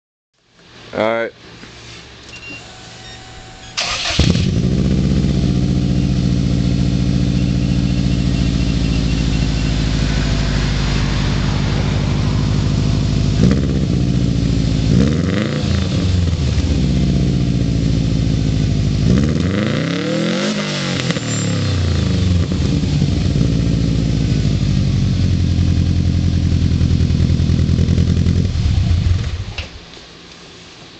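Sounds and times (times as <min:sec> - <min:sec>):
car engine cranking: 0:03.0 - 0:06.0
car engine idling and revving: 0:03.0 - 0:29.9.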